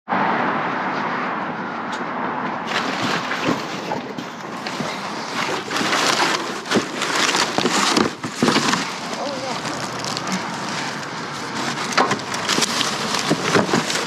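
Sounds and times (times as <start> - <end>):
objects knocking: 2.7 - 11.0, 11.6 - 14.0
trash bags rustling: 2.7 - 14.0.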